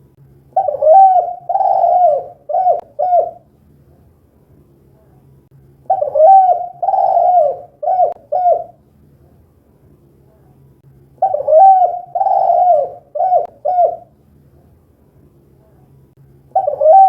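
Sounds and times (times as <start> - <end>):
dove cooing: 0.6 - 3.4, 5.9 - 8.8, 11.2 - 14.1, 16.5 - 17.0.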